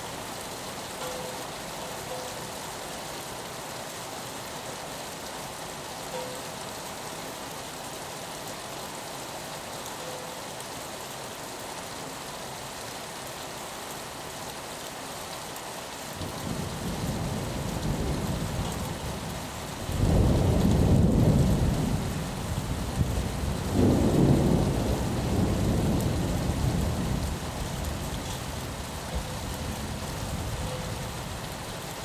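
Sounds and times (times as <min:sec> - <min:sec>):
rain on a window: 0:00.0 - 0:32.0
thunder rumbling: 0:19.9 - 0:28.2.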